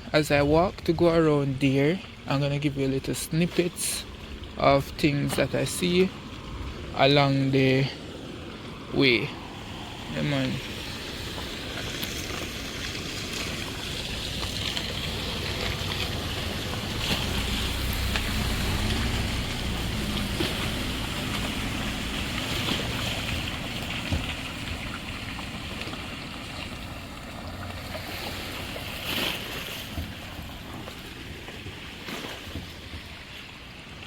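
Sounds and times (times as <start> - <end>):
engine passing by: 6.0 - 32.4.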